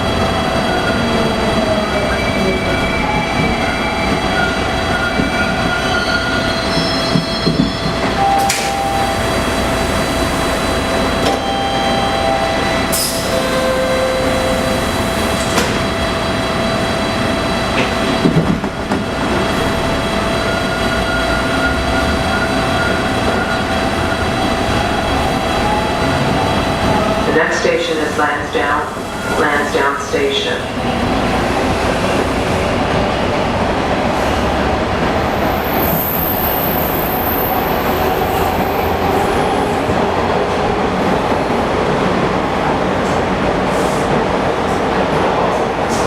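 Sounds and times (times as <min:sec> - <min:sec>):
subway car rumble and hum: 0:00.0 - 0:46.0.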